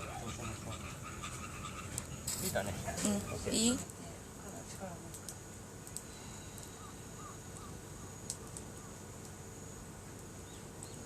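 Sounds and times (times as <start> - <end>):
bird chirping: 0.0 - 3.8, 6.7 - 9.0, 10.4 - 11.0
campfire crackling and popping: 0.0 - 11.0
outdoor hush: 0.0 - 11.0.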